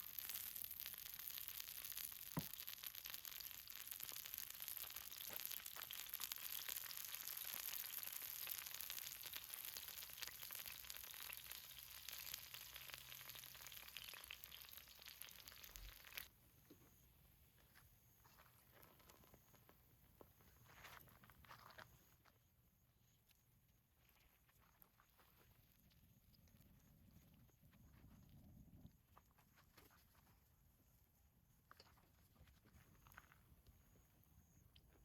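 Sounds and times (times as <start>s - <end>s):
pancake sizzling in oil: 0.0s - 16.3s.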